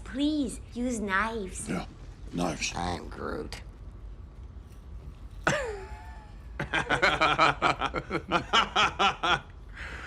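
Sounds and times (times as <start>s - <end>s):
man laughing: 5.5s - 9.6s.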